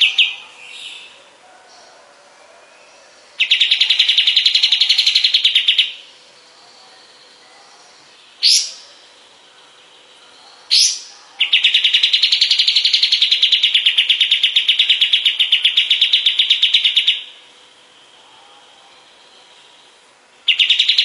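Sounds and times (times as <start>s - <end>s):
songbird fast trill: 2.8s - 21.0s.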